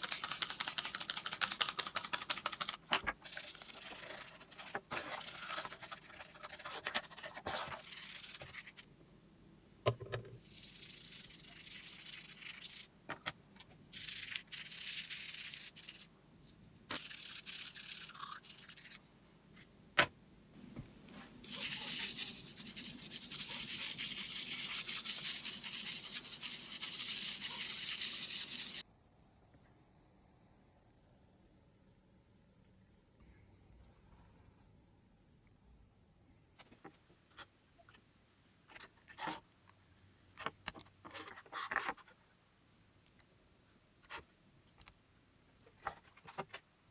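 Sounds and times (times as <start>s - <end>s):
scrubbing: 21.4s - 28.8s.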